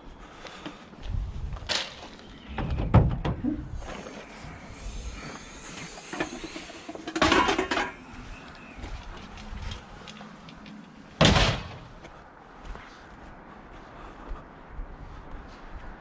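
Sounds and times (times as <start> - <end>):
metal scraping: 3.7 - 8.5
scrap metal clattering: 5.2 - 8.1
heavy thud: 11.2 - 11.9.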